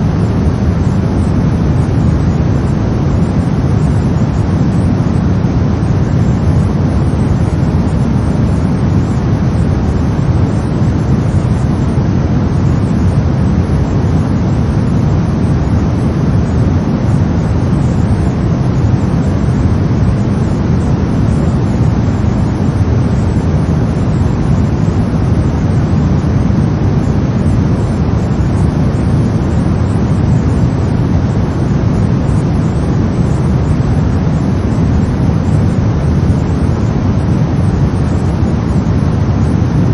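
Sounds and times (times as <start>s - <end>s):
brown noise: 0.0s - 39.9s.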